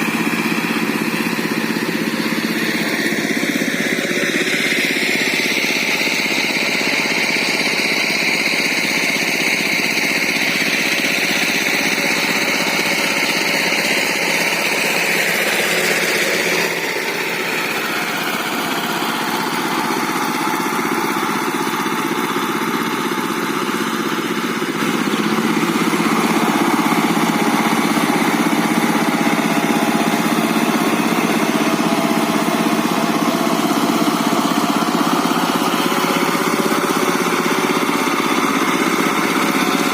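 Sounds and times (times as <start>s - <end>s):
tractor diesel engine chugging: 0.0s - 39.9s.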